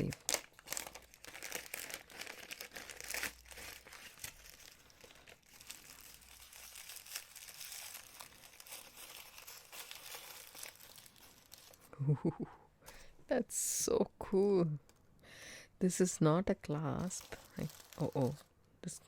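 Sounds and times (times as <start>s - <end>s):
packaging crinkling: 0.0s - 11.9s, 16.8s - 18.7s.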